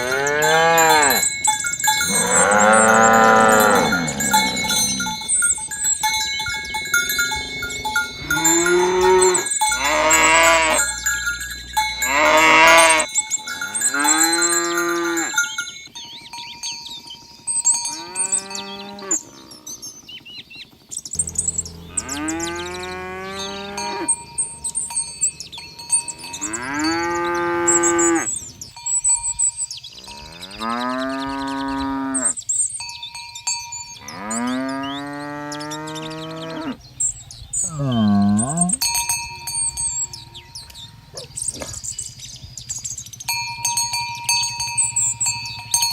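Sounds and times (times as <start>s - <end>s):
cattle mooing: 0.0s - 5.6s, 6.9s - 15.6s, 17.9s - 19.8s, 21.2s - 28.6s, 30.0s - 32.4s, 34.0s - 36.8s, 37.6s - 38.9s, 40.0s - 41.9s.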